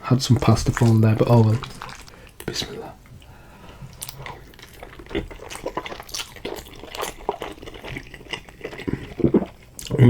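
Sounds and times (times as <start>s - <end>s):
wet eating sounds: 0.1s - 10.0s
lip smacks: 0.4s - 2.8s.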